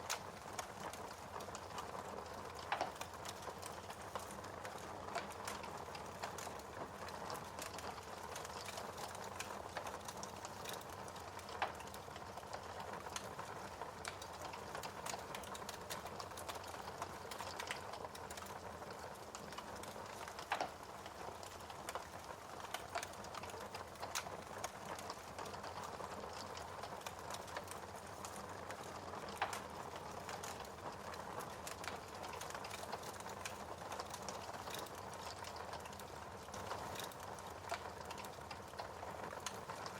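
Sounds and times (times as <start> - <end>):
fire snapping: 0.0 - 39.9
wood fire crackling: 0.0 - 39.9.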